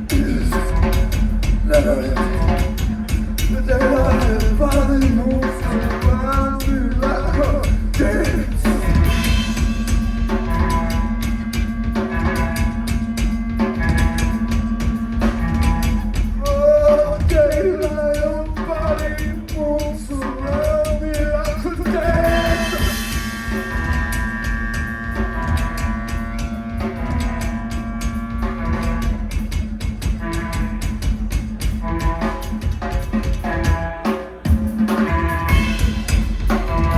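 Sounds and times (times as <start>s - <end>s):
drum kit played fast: 0.0s - 36.9s
sustained pitched tones: 22.2s - 29.6s.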